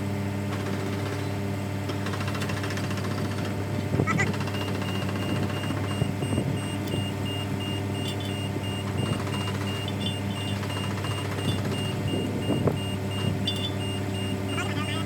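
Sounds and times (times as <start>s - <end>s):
excavator diesel engine running: 0.1s - 15.0s
travel alarm beeping: 4.2s - 15.0s.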